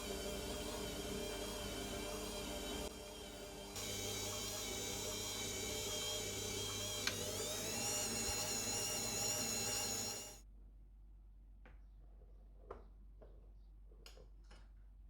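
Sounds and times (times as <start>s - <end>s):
electric motor whining: 0.0s - 10.4s.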